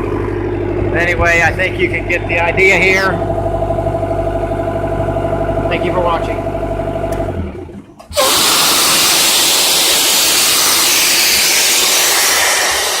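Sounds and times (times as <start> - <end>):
engine hum: 0.0 - 13.0
loud steady hiss: 8.1 - 13.0.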